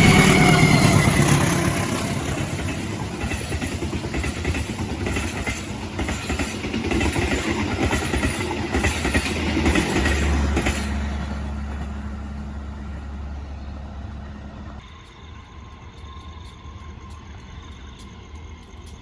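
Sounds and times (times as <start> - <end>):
train wheels clattering over rails: 0.0 - 13.4.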